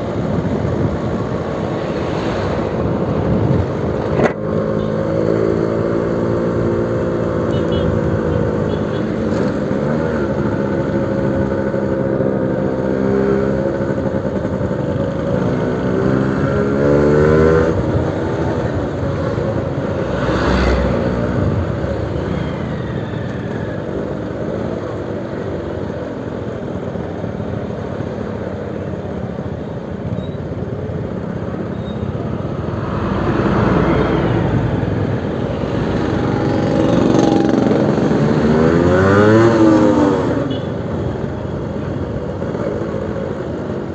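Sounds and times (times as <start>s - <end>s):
two-stroke motorcycle engine revving: 4.2s - 18.8s, 35.7s - 40.5s.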